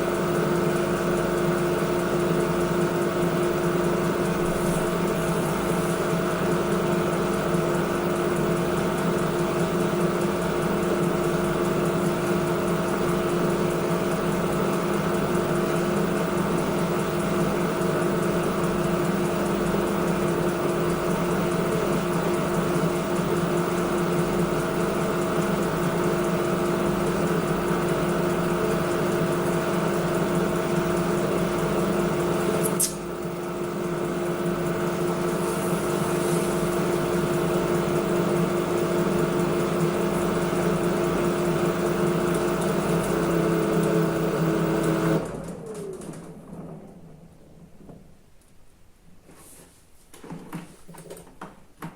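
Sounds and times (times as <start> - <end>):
washing machine humming: 0.0 - 49.3
short click: 32.6 - 33.0.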